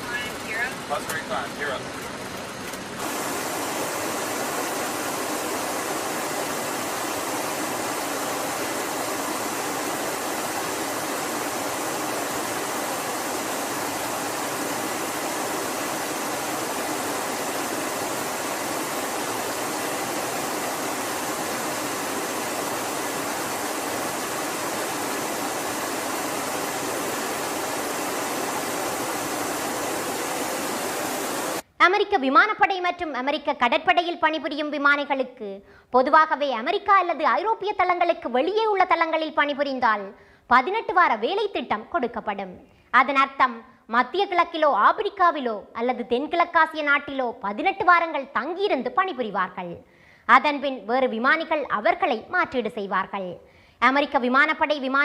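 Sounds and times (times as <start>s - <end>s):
airflow and jet engine rushing: 0.0s - 31.7s.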